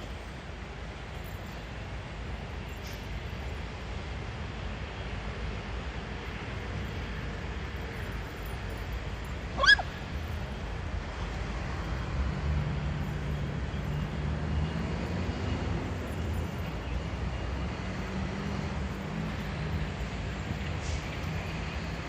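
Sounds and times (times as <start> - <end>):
dog yipping: 9.6 - 10.0.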